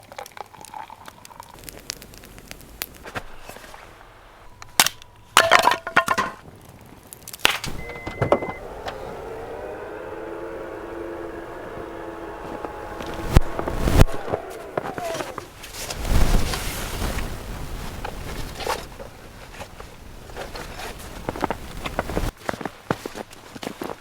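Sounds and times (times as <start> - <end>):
steady hum with held tones: 7.7 - 16.4.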